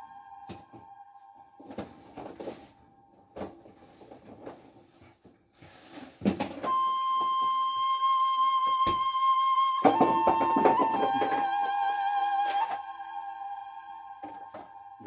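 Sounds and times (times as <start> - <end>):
background music: 0.0 - 3.4, 6.7 - 15.0.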